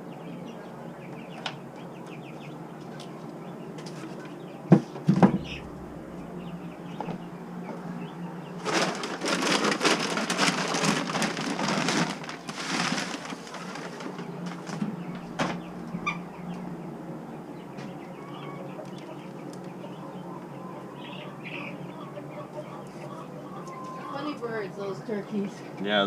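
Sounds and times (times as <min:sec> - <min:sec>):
chicks peeping: 0:00.0 - 0:25.8
poultry wings flapping: 0:08.6 - 0:16.2.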